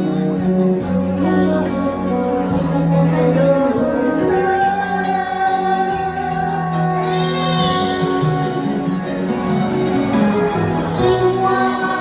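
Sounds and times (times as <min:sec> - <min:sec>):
instrumental accompaniment: 0:00.0 - 0:12.0
woman singing: 0:01.0 - 0:08.5, 0:10.9 - 0:12.0.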